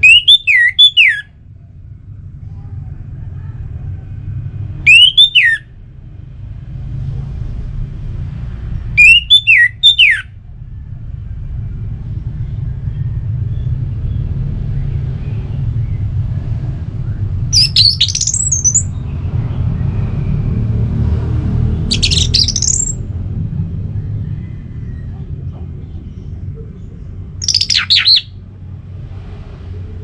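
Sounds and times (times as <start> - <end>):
thrush singing swooping whistles: 0.0 - 1.3, 4.9 - 5.7, 9.0 - 10.3, 17.6 - 19.0, 21.9 - 23.0, 27.4 - 28.4
steady low rumble: 0.0 - 4.9, 5.6 - 9.0, 10.2 - 30.0.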